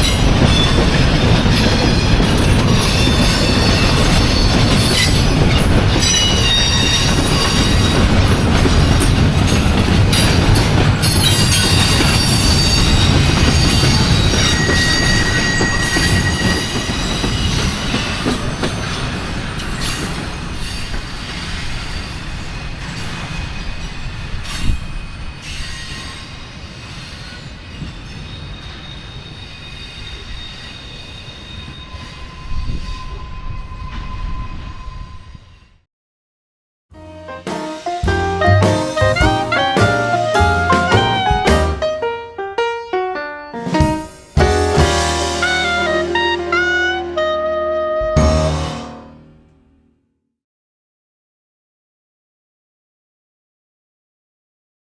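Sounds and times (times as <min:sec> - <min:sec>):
freight train rolling by: 0:00.0 - 0:35.7, 0:37.0 - 0:49.5
train wheels squealing: 0:00.0 - 0:35.8.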